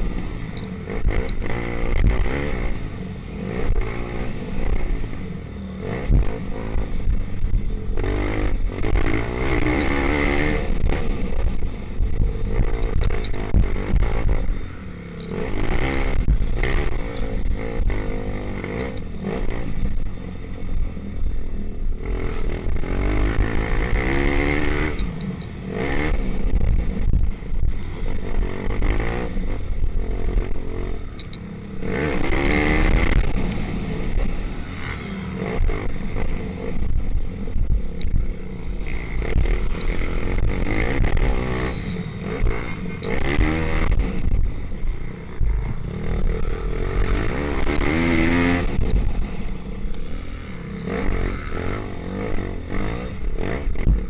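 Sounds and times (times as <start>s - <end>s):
pit bike engines revving: 0.0s - 54.0s
low rumble: 25.7s - 54.0s.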